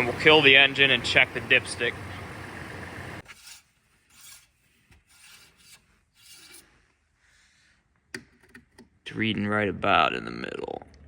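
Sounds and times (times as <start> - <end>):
car engine idling: 0.0 - 3.2.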